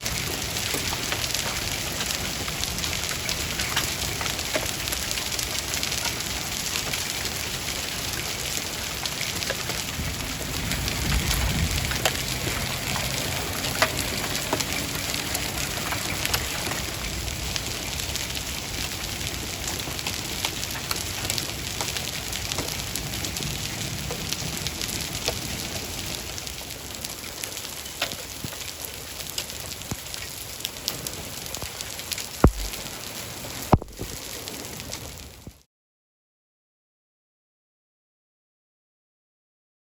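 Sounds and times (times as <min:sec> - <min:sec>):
hailstones pattering: 0:00.0 - 0:35.6
low rumble: 0:32.4 - 0:32.9.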